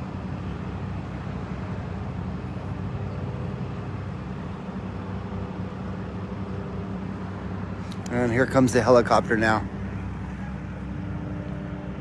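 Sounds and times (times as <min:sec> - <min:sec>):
vehicle engines idling: 0:00.0 - 0:12.0.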